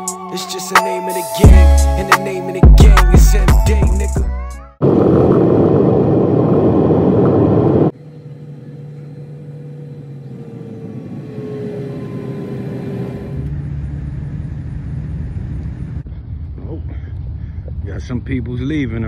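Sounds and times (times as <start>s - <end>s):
background music: 0.0s - 4.8s
low mechanical hum: 4.8s - 18.8s.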